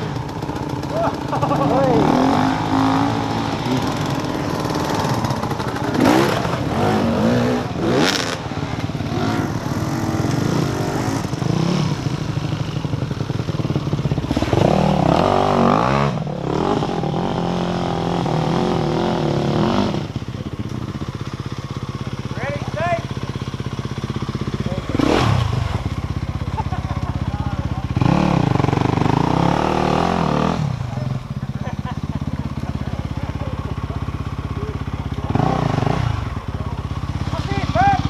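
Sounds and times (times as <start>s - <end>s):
engine revving: 0.0s - 12.8s, 14.2s - 20.2s, 24.6s - 27.0s, 27.8s - 31.2s, 35.1s - 38.0s.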